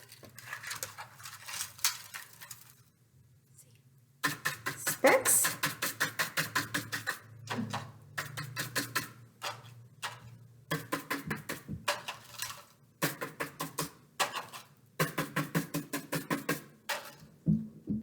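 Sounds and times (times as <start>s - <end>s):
brush tapping paint onto paper: 4.2s - 12.2s, 13.0s - 18.0s.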